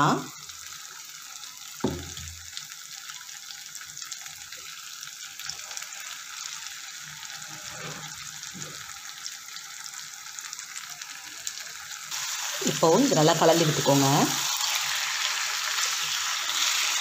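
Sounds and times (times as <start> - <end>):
sauce sizzling in oil: 0.0 - 17.0
soft thump: 1.8 - 2.2.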